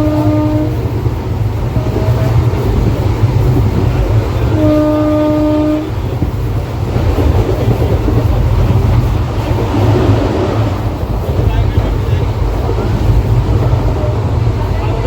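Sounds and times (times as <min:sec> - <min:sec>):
train horn: 0:00.0 - 0:00.9, 0:01.7 - 0:02.6, 0:04.3 - 0:06.1
train rumbling: 0:00.0 - 0:15.0.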